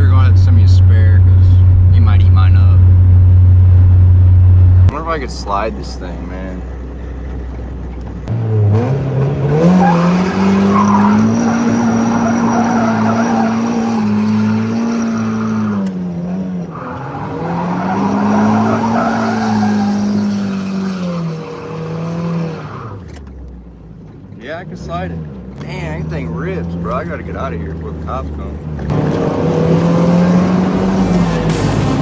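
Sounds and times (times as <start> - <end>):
car engine revving high: 8.3 - 23.0, 24.7 - 32.0
tyres squealing: 9.8 - 16.0, 16.6 - 23.2.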